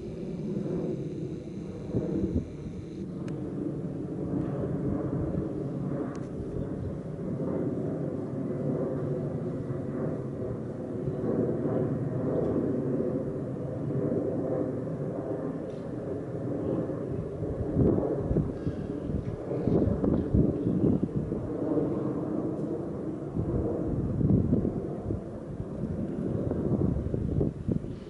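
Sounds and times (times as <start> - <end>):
airplane engines rumbling: 0.0 - 28.0.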